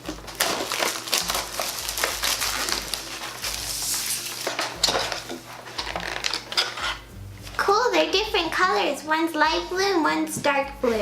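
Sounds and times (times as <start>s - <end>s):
cardboard packaging tearing: 0.0s - 7.0s.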